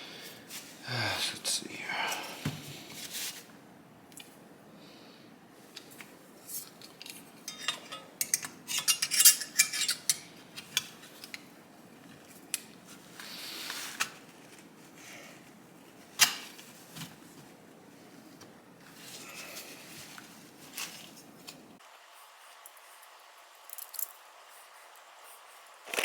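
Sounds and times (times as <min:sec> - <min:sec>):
metal tools clinking: 0:07.0 - 0:10.8.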